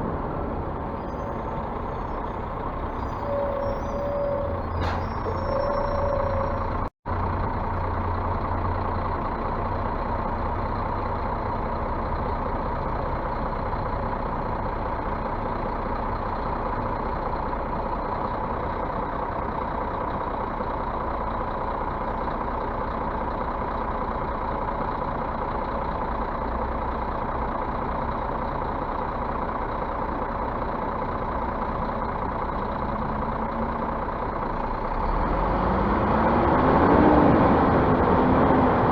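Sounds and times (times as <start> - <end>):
bus engine drone with whine: 0.0 - 38.9
short pitched tone: 1.0 - 6.9.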